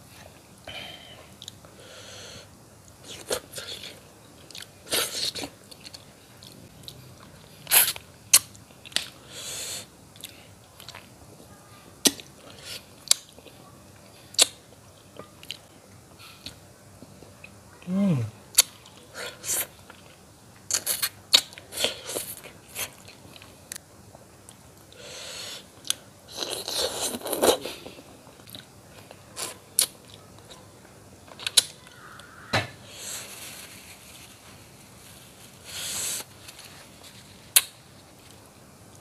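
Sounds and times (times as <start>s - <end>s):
man chewing food: 2.8s - 9.2s, 10.1s - 11.1s, 15.2s - 17.5s, 18.5s - 30.6s.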